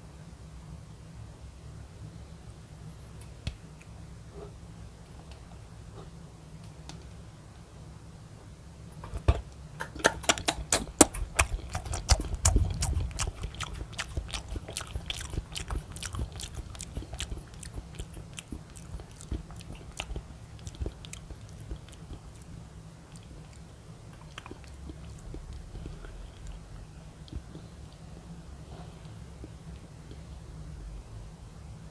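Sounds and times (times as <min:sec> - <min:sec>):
chewing gummy jelly: 0:09.8 - 0:28.1.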